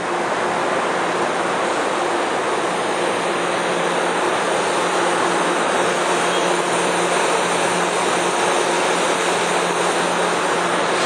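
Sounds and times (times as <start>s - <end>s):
train mechanical roar: 0.0s - 11.0s.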